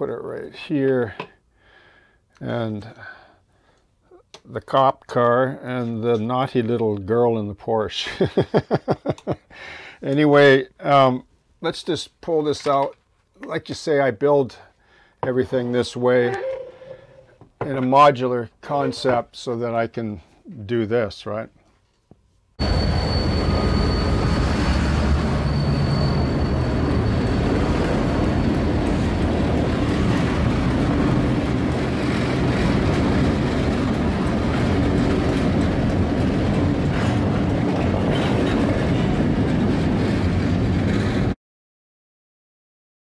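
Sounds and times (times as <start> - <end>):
thin high steady tone: 22.6 - 28.7
locomotives rumbling past: 22.6 - 41.4.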